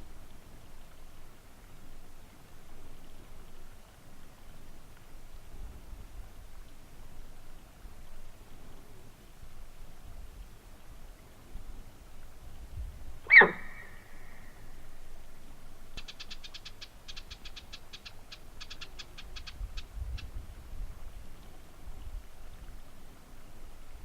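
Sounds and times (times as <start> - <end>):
animal call sliding down in pitch: 13.3 - 14.0.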